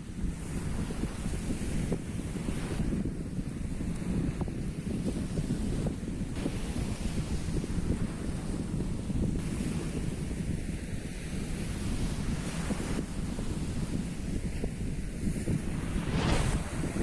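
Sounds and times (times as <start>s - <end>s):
wind buffeting microphone: 0.0s - 17.0s
sea surf: 6.4s - 17.0s.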